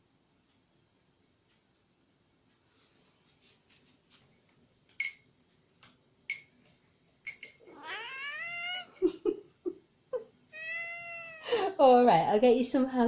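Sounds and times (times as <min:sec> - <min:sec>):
cat meowing: 0:07.7 - 0:09.0, 0:10.5 - 0:11.6.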